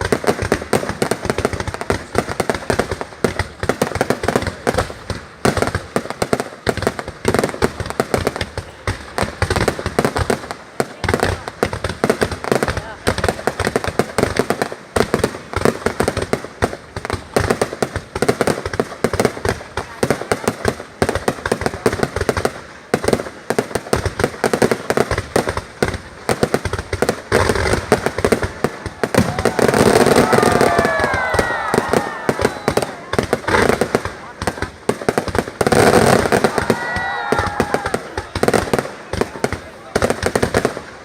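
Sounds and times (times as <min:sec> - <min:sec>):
fireworks cracking and banging: 0:00.0 - 0:41.0
falling firework whistles: 0:29.2 - 0:33.8.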